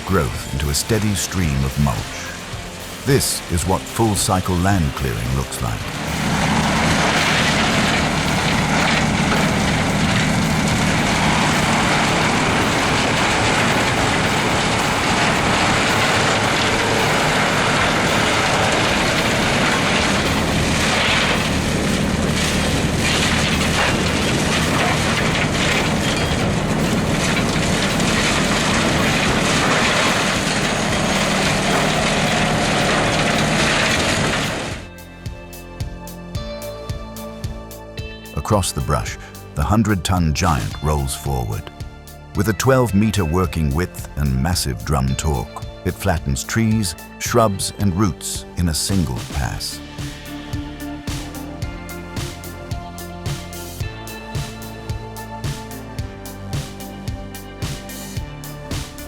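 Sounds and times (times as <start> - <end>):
cutter drum shredding vines: 0.0 - 34.9, 48.7 - 56.0, 56.6 - 59.0
mulcher engine drone: 0.0 - 59.0.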